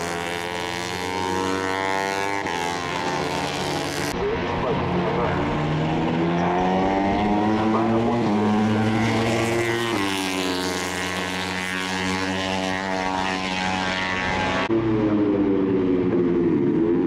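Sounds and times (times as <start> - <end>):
racing motorcycle engines revving: 0.0 - 17.0.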